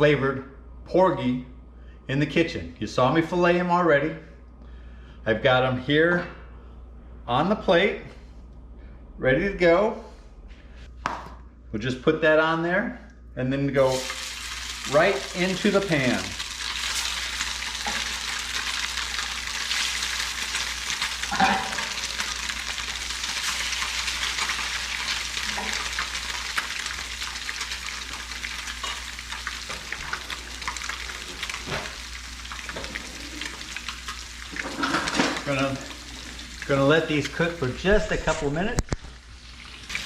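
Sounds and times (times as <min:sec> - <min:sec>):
fish sizzling in a pan: 0:13.9 - 0:37.4, 0:39.2 - 0:40.0.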